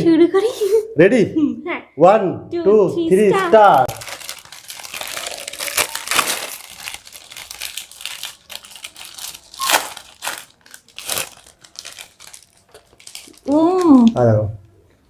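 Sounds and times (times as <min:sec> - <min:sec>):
plastic wrappers crinkling: 0:03.6 - 0:14.2.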